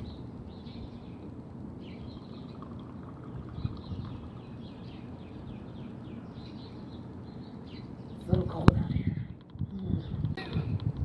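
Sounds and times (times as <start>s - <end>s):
low steady rumble: 0.0s - 11.0s
small birds chirping: 0.0s - 11.0s.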